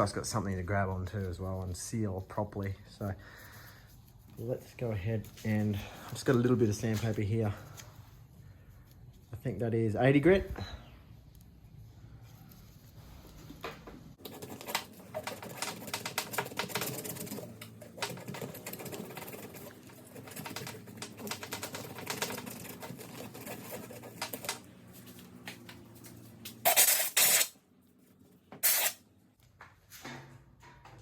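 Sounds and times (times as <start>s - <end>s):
sandpaper scratching back and forth: 26.6s - 27.6s, 28.6s - 29.0s.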